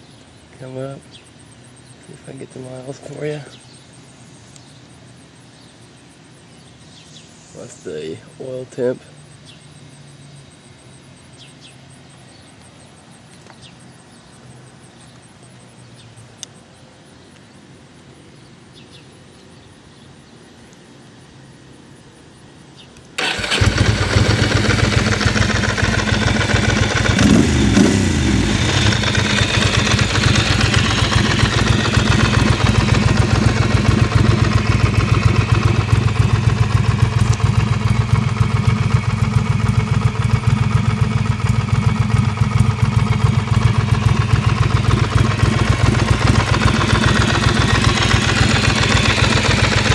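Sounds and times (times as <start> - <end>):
motorcycle engine revving: 23.2 - 49.9
motorcycle engine starting and idling: 23.2 - 49.9.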